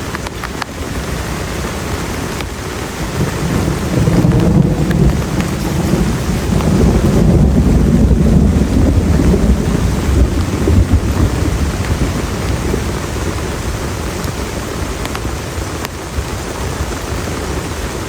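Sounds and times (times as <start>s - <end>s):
heavy rain falling: 0.0s - 18.0s
deep rumble of thunder: 2.9s - 14.6s.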